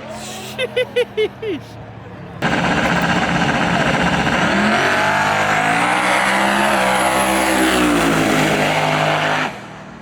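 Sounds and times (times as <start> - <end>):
drag racing car accelerating: 2.4 - 9.9.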